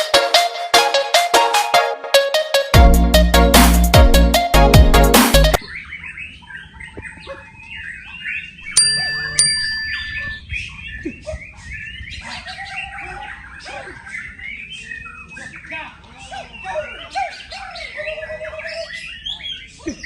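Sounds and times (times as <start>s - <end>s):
songbirds singing and chirping: 5.6s - 20.0s
loud ringing tones: 8.6s - 10.4s.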